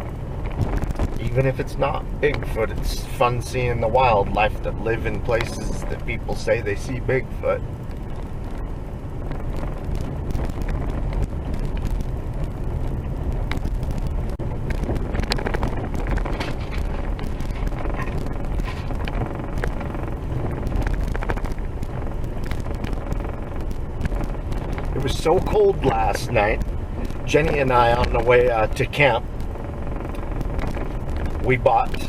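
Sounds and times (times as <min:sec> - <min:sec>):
vehicle rumbling on dirt road: 0:00.0 - 0:32.0
rattles and knocks: 0:12.8 - 0:28.6.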